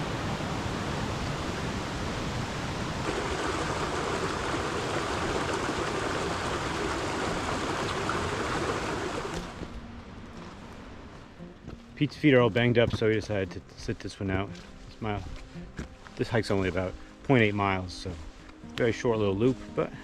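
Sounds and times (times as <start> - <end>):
brook rushing: 3.0 - 9.7.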